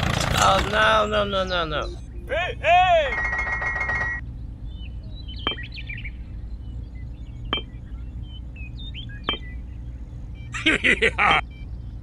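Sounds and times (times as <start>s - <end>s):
steady low hum: 0.0s - 12.0s
high twitters: 0.3s - 4.2s
birds chirping: 0.3s - 12.0s.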